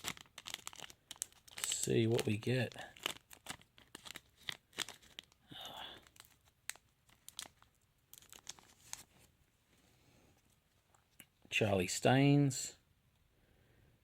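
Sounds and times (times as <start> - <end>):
wrapper tearing and crinkling: 0.0 - 9.1.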